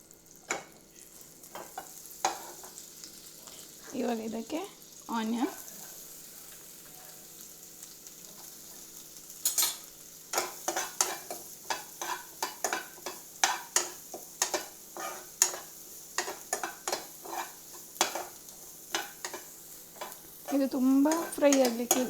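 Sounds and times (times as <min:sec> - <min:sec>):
onion sizzling in butter: 0:00.0 - 0:22.0
utensil scraping pan: 0:10.4 - 0:22.0.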